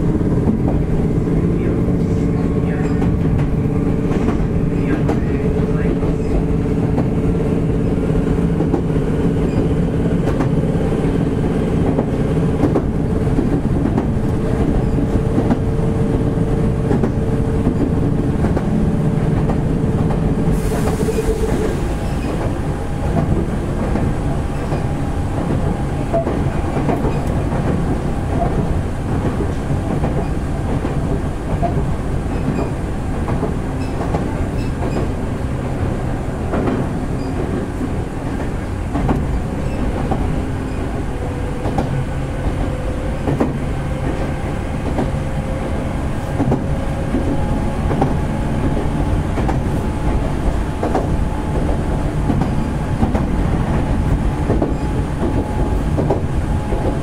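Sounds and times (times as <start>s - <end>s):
train motor hum: 0.0s - 57.0s
train wheels rumbling: 0.0s - 57.0s
clicking over rail joints: 10.2s - 10.6s, 20.9s - 35.2s, 36.4s - 45.2s, 46.2s - 57.0s.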